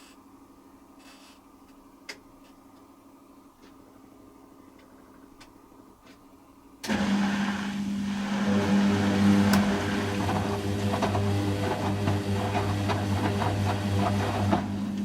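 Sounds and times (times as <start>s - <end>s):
washing machine hum: 2.3s - 15.0s
washing machine rushing: 6.8s - 15.0s.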